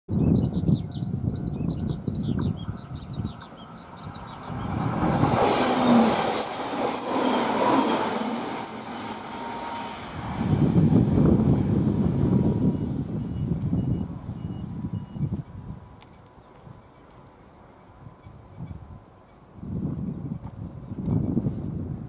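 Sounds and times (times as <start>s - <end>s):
birds chirping: 0.1s - 6.2s
electric train passing: 1.9s - 19.7s.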